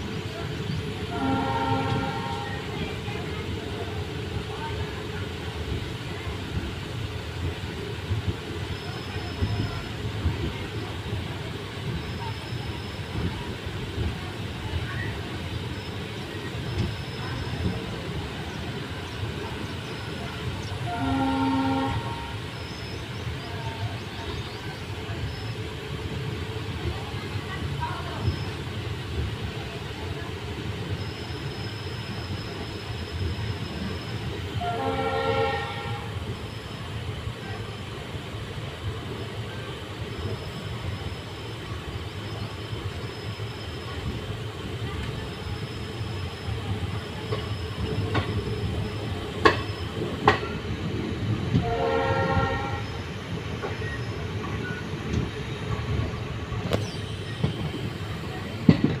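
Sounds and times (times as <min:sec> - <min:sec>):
train rumbling: 0:00.0 - 0:59.0
train horn blasts: 0:01.0 - 0:02.8, 0:20.8 - 0:22.5, 0:34.5 - 0:36.3, 0:51.6 - 0:53.0.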